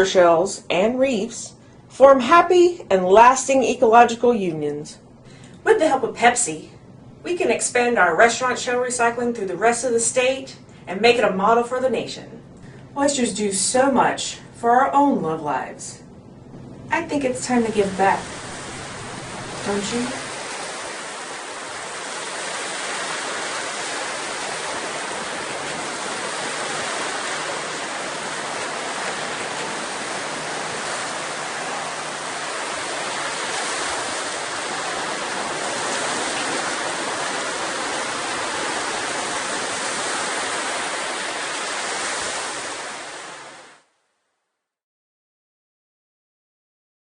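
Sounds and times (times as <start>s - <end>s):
rushing water: 17.5s - 43.9s.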